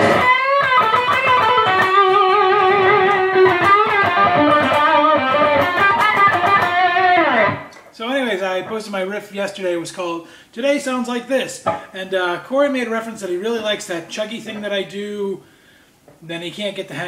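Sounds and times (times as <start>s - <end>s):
electric guitar riff with vibrato: 0.0s - 7.9s.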